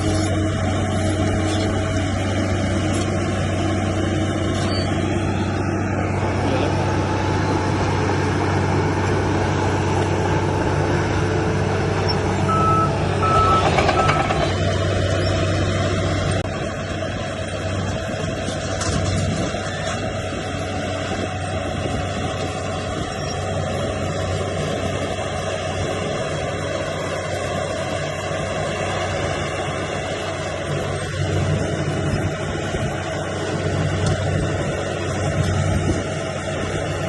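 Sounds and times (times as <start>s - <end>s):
heavy diesel machinery running: 0.0s - 37.0s
low beeping: 12.0s - 15.5s
reversing alarm beeps: 12.5s - 14.4s.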